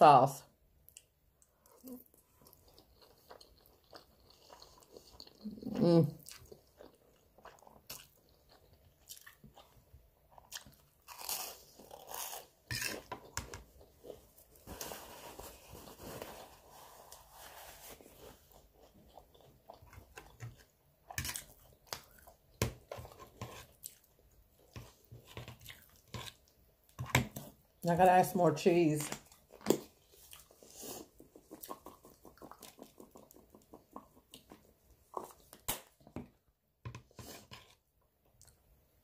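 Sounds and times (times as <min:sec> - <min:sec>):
person chewing: 0:00.9 - 0:27.6, 0:29.1 - 0:36.2.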